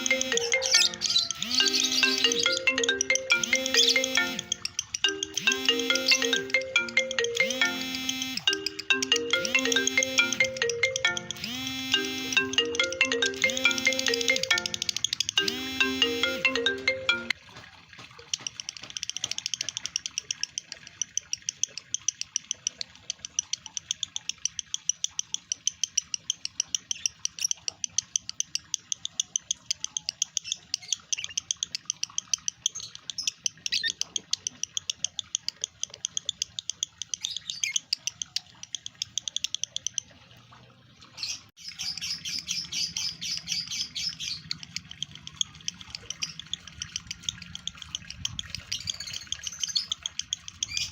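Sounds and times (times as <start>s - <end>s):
bird chattering high chirps: 0.0s - 6.7s, 41.2s - 50.9s.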